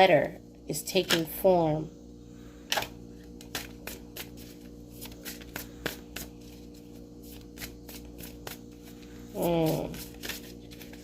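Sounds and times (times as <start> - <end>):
faint steady hum: 0.0 - 11.0
playing cards shuffling: 3.4 - 11.0.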